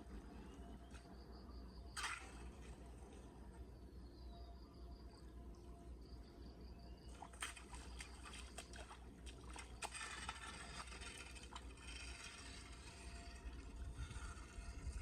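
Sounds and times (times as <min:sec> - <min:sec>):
water splashing and trickling: 0:07.1 - 0:15.0.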